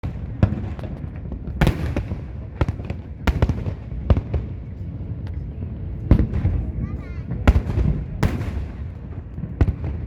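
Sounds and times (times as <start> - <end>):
firework shells booming: 0.0 - 4.5, 7.5 - 10.0
low echoing rumble: 1.3 - 10.0.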